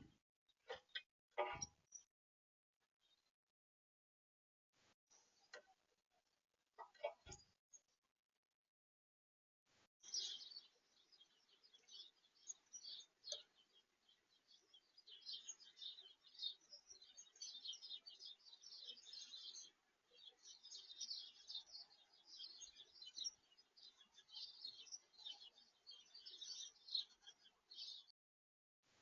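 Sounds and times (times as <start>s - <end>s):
birds chirping: 6.8s - 7.5s, 10.0s - 28.1s.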